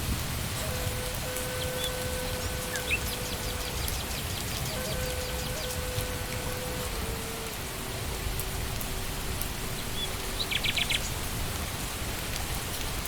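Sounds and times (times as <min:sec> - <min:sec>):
rain falling on leaves: 0:00.0 - 0:13.0
bird chirping: 0:01.3 - 0:06.9.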